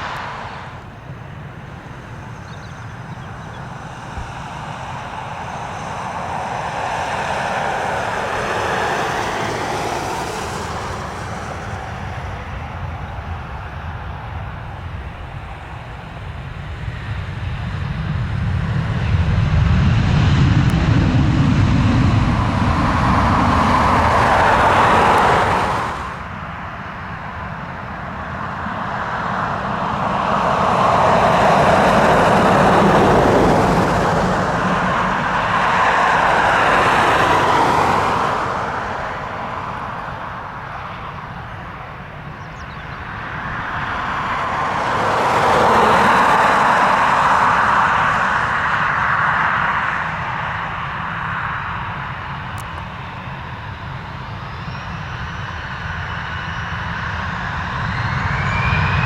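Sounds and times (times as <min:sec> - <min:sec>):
jet airliner engine noise: 0:00.0 - 0:59.0
deep rumble: 0:17.1 - 0:26.3, 0:30.8 - 0:40.0.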